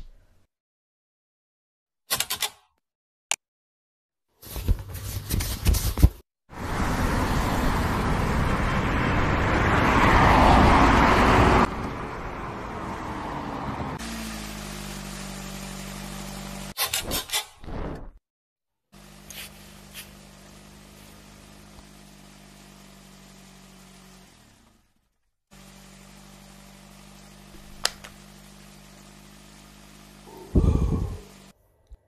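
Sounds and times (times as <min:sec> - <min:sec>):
van driving fast: 0:06.5 - 0:16.8, 0:19.0 - 0:31.5
engine idling hum: 0:19.0 - 0:31.5.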